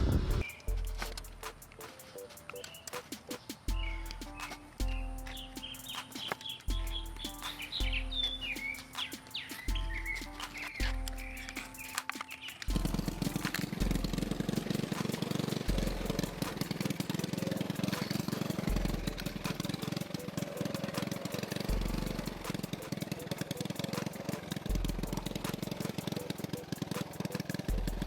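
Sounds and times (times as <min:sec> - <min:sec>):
mini-bike engine running: 0:12.6 - 0:28.0.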